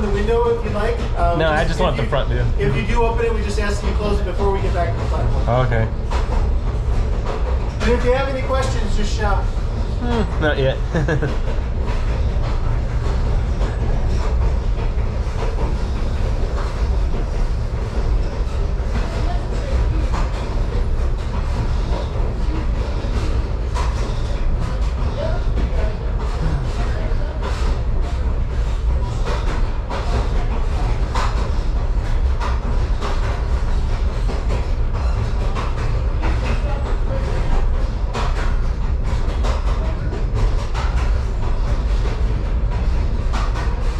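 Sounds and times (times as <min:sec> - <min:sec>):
diesel engine rumble: 0:00.0 - 0:03.8
train rolling along track: 0:00.0 - 0:43.9.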